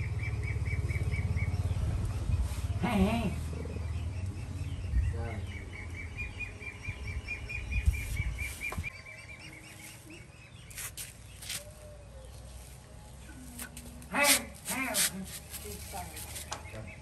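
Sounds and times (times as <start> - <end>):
bird chirping: 0.0 - 2.8, 3.4 - 14.6, 15.2 - 17.0
scratchy noises: 13.4 - 16.5.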